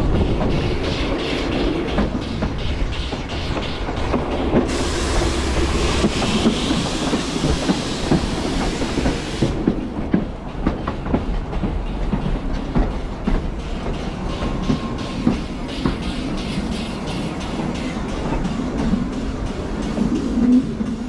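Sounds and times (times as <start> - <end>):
train low rumble: 0.0 - 21.0
high hiss: 2.2 - 9.8.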